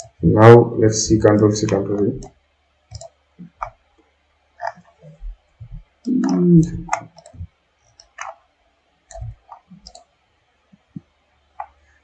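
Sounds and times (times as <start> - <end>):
mouse and keyboard clicks: 2.9 - 3.8, 4.6 - 5.2, 6.1 - 8.4, 9.1 - 10.1.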